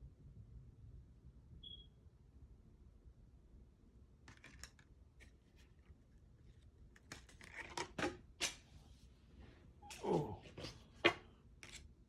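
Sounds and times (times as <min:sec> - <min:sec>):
trading cards clicking and rustling: 0:04.3 - 0:05.3.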